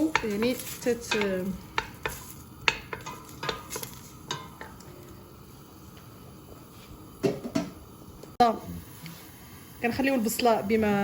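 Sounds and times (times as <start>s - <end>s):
spoon scraping a pot: 0.0s - 5.0s
onions sizzling: 0.0s - 11.0s.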